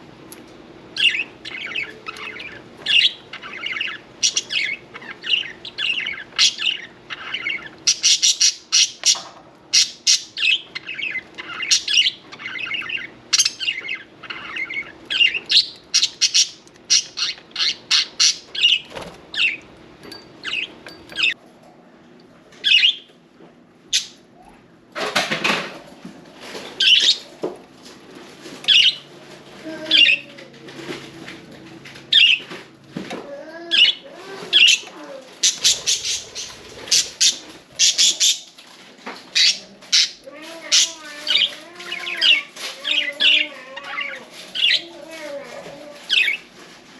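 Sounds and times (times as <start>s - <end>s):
budgerigars chirping and chattering: 1.0s - 19.7s, 20.4s - 21.4s, 22.6s - 23.1s, 23.9s - 24.2s, 26.8s - 27.5s, 28.6s - 29.1s, 29.7s - 30.9s, 32.1s - 32.6s, 33.7s - 44.9s, 46.0s - 46.5s.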